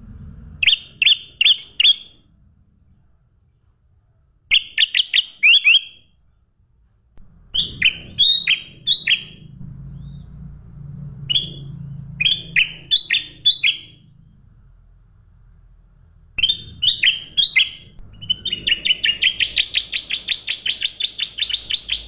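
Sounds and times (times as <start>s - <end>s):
steady low hum: 0.0s - 4.5s, 6.2s - 22.0s
songbird chirping: 0.6s - 2.2s, 4.5s - 6.0s, 7.5s - 14.6s, 16.4s - 22.0s.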